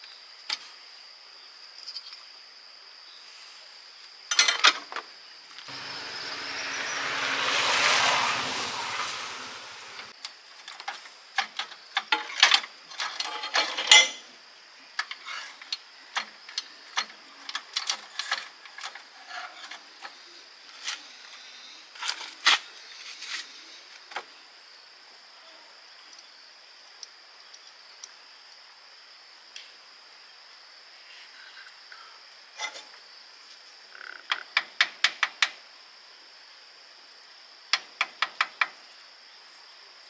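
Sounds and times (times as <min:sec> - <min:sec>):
hand tools clinking on metal: 0:04.3 - 0:04.8, 0:10.6 - 0:14.3, 0:15.0 - 0:20.2.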